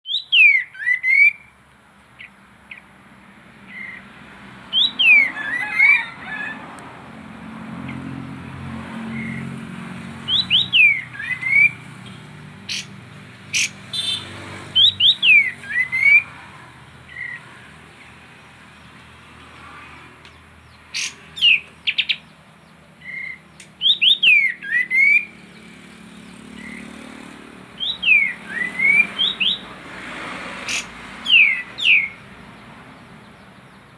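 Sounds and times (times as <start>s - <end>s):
bird singing whistled notes: 0.0s - 1.5s, 4.7s - 6.0s, 10.3s - 11.9s, 14.8s - 16.3s, 21.0s - 22.3s, 23.0s - 25.3s, 27.8s - 29.7s, 30.7s - 32.2s
bird sharp chirps: 0.0s - 1.6s, 4.7s - 6.1s, 10.2s - 16.3s, 20.6s - 27.0s, 27.8s - 29.7s, 30.6s - 32.3s.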